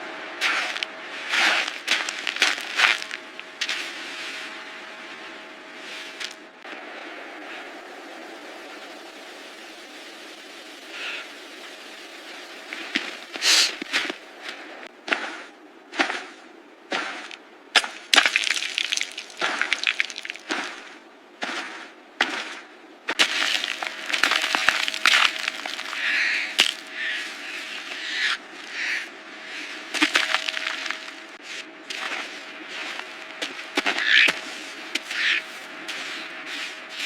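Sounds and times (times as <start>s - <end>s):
crunching and cracking: 0.4s - 3.8s, 17.3s - 20.9s, 23.2s - 28.4s, 29.9s - 34.4s.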